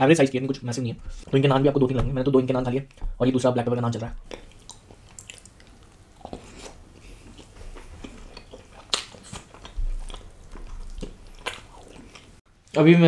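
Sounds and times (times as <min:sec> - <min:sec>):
man chewing bread: 0:04.2 - 0:12.4.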